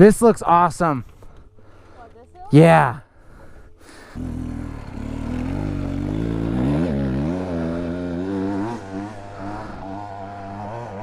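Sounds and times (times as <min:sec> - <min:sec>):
dirt bike engine revving: 0:04.2 - 0:11.0.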